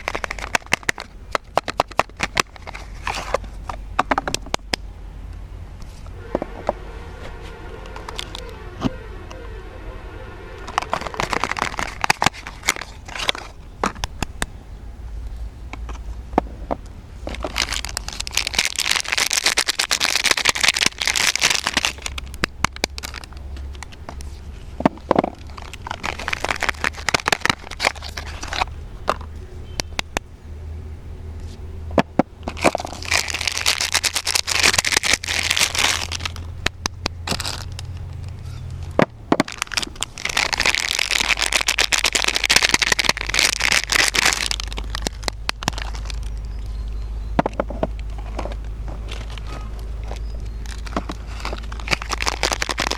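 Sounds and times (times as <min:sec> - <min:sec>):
soap packaging crinkling: 0:00.0 - 0:03.7, 0:10.7 - 0:14.2, 0:17.3 - 0:24.4, 0:25.0 - 0:29.2, 0:32.4 - 0:38.4, 0:39.4 - 0:46.6, 0:47.9 - 0:52.9.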